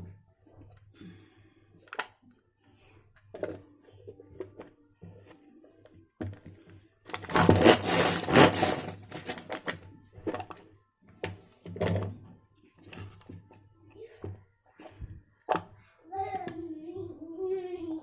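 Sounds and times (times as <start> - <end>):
pull-cord chopper chopping onion: 7.2 - 9.4.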